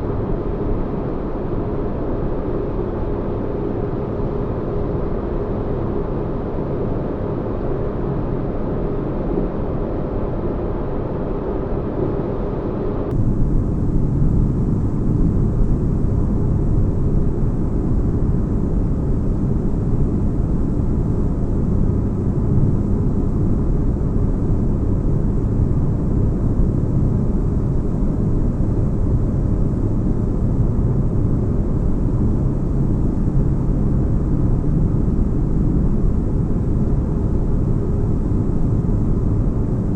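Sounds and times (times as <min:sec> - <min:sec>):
deep rumbling drone: 0:13.0 - 0:39.9.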